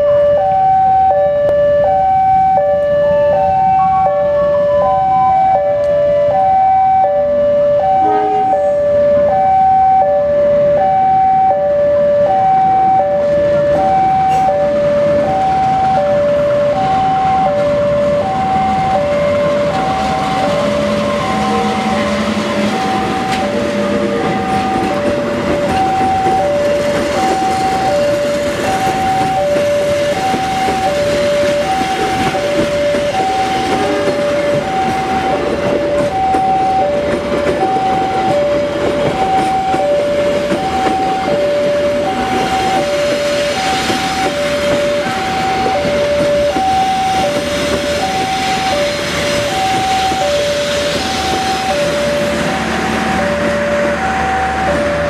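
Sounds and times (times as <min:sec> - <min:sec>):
train rumbling: 0:00.0 - 0:55.0
two-tone electronic warning alarm: 0:00.0 - 0:55.0.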